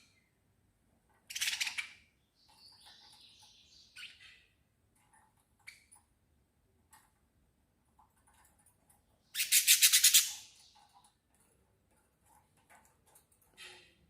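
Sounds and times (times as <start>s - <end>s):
faint bird chirps: 1.3s - 4.6s
bird rattling trill: 9.3s - 11.1s.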